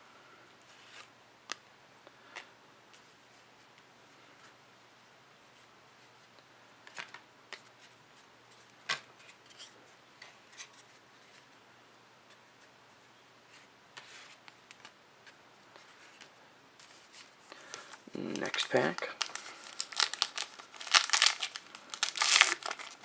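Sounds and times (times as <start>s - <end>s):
card packs rustling: 16.8s - 23.0s.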